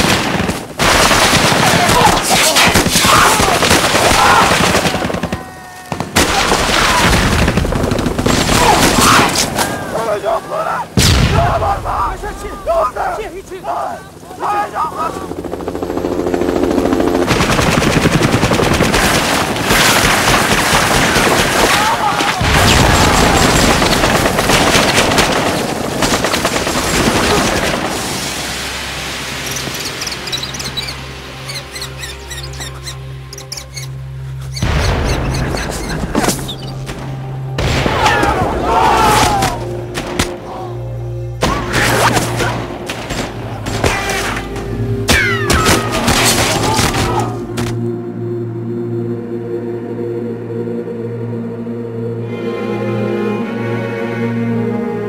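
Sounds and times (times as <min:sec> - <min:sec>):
rapid machine-gun fire: 0:00.0 - 0:09.0, 0:17.2 - 0:28.0
din of battle: 0:00.0 - 0:15.3, 0:17.3 - 0:28.5, 0:34.6 - 0:47.7
low music tones: 0:28.2 - 0:55.0.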